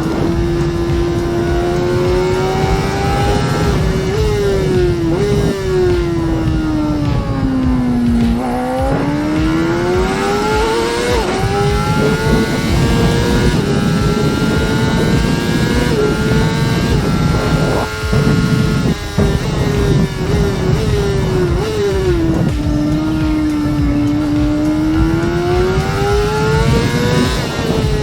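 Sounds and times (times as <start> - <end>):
motorcycle engine revving: 0.0 - 28.0
wind and road noise: 0.0 - 28.0.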